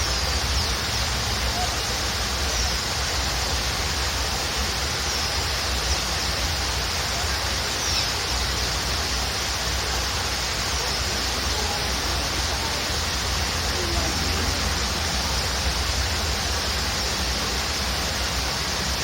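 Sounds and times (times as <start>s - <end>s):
waterfall rushing: 0.0s - 19.0s
faint high bird chirps: 7.7s - 8.5s.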